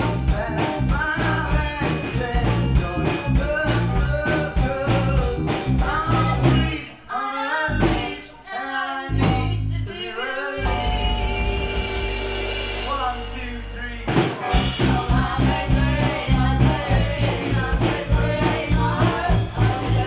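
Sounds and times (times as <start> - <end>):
rock band playing: 0.0 - 6.8, 10.6 - 20.0
person singing: 0.0 - 20.0.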